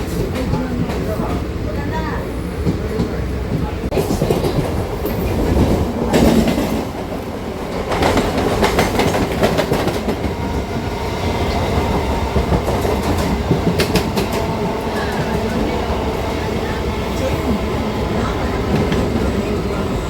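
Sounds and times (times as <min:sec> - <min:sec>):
train wagons rumbling: 0:00.0 - 0:20.0
wheels clacking over rail joints: 0:02.6 - 0:10.8, 0:11.4 - 0:17.5.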